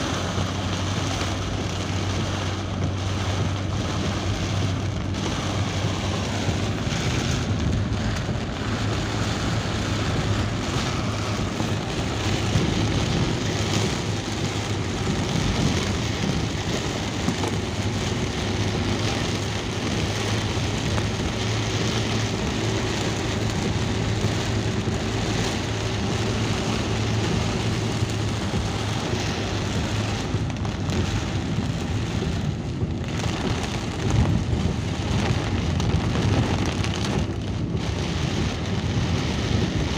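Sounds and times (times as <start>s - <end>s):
rain falling: 0.0s - 39.9s
vehicle engine and road noise: 0.0s - 39.9s.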